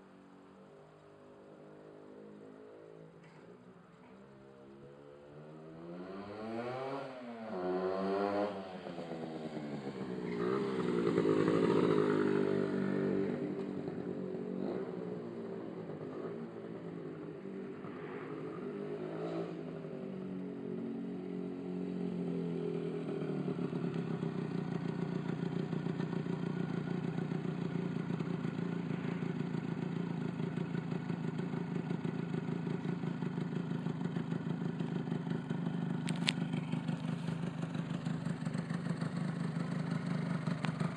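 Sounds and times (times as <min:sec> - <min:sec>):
two-stroke motorcycle engine revving: 0:05.6 - 0:16.8, 0:22.6 - 0:40.9.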